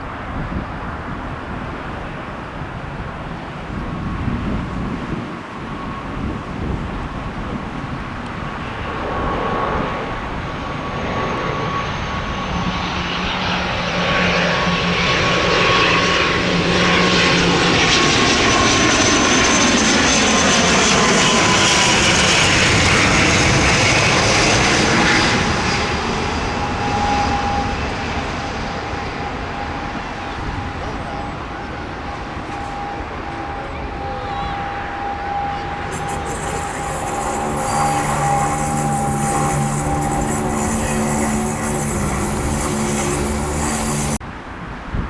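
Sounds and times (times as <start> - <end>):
airliner passing overhead: 0.0 - 44.9.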